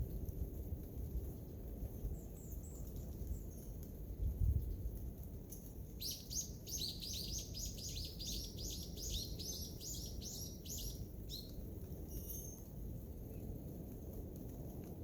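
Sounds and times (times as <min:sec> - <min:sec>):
songbird singing high notes: 0:06.0 - 0:11.5.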